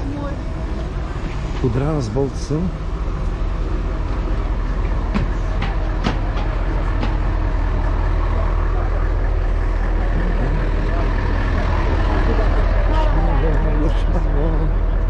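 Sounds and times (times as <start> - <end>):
vehicle interior rumble: 0.0 - 15.0
sharp knocks and rattles: 4.8 - 7.6.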